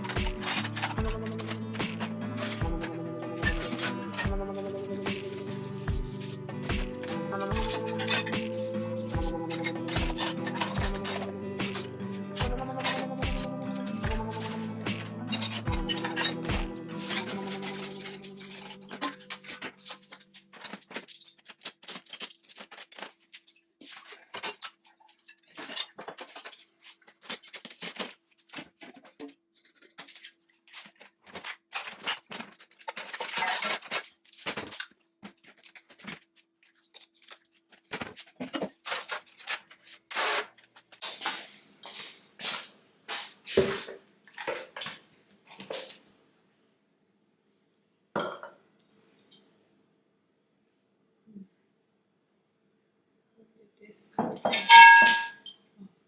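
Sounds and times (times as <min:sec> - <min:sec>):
music: 0:00.0 - 0:19.9
kitchenware knocking and clinking: 0:48.2 - 0:48.6, 0:54.2 - 0:55.4.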